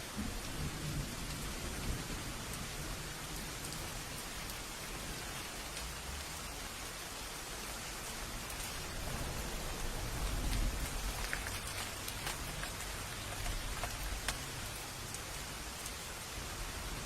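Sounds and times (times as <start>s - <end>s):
steady rain hiss: 0.0s - 17.0s
raindrops ticking sharply: 0.1s - 17.0s
low rumble: 8.6s - 14.3s.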